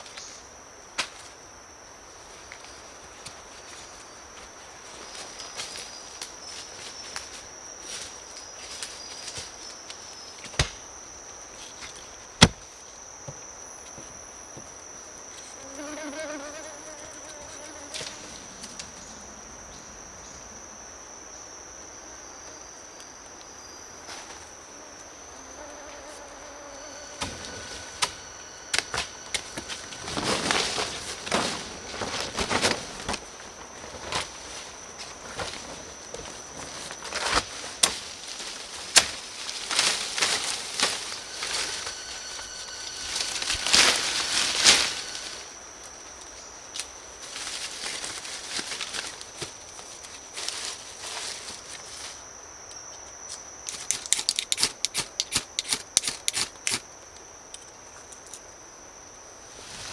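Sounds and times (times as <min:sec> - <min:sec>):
insect drone: 0:00.0 - 0:59.9
rustling: 0:25.9 - 0:45.5, 0:59.5 - 0:59.9.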